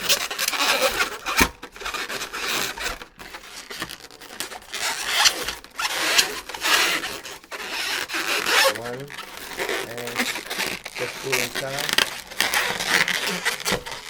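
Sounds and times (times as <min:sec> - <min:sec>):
balloons rubbing together: 0:00.0 - 0:14.0.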